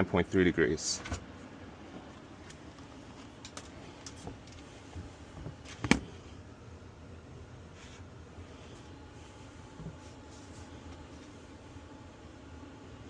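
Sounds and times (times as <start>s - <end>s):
heat pump humming: 0.0s - 13.0s.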